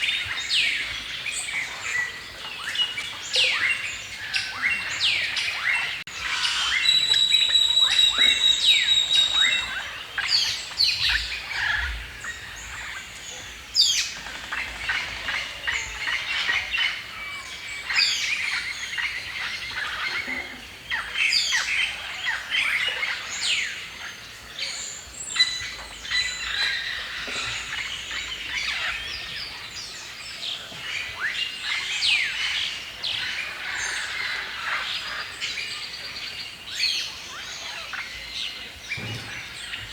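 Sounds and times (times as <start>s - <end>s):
songbirds singing and chirping: 0.0s - 39.9s
bird high whistle: 6.4s - 9.8s.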